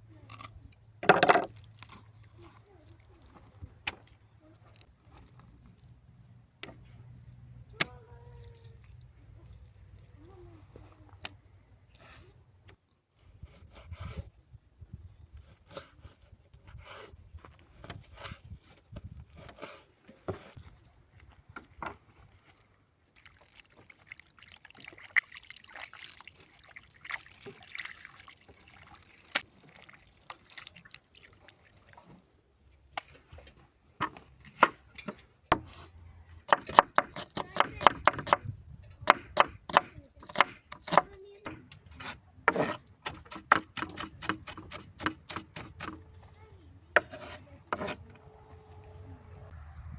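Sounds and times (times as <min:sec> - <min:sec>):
liquid trickling: 0:20.9 - 0:32.4.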